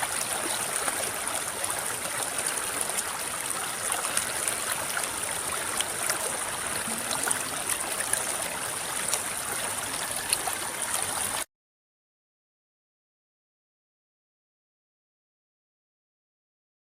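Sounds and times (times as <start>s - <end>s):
river babbling over stones: 0.0s - 11.5s.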